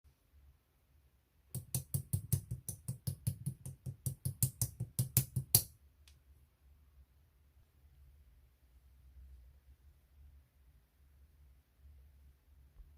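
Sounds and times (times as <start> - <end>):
fingers tapping: 1.6 - 5.7.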